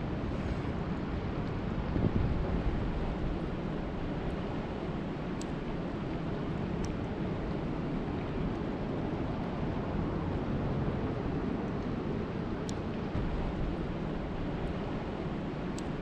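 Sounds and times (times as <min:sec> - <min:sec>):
faint sharp ticks: 0:05.4 - 0:05.6, 0:12.6 - 0:12.9.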